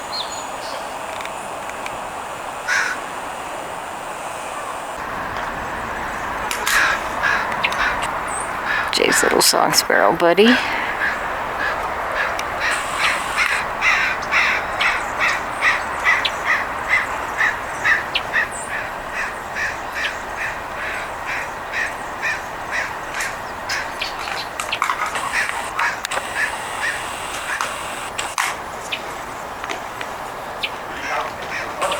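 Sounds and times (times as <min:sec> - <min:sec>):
crow cawing: 0:02.7 - 0:03.1, 0:06.6 - 0:08.9, 0:10.7 - 0:23.9, 0:25.2 - 0:28.1.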